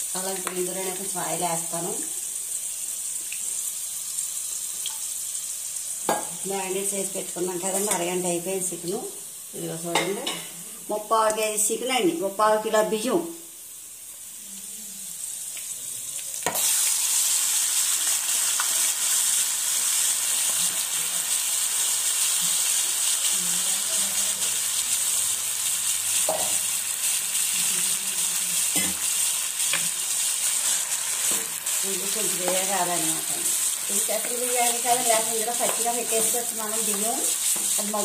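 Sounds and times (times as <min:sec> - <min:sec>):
chicken sizzling in hot oil: 0:00.0 - 0:11.8, 0:12.5 - 0:38.0.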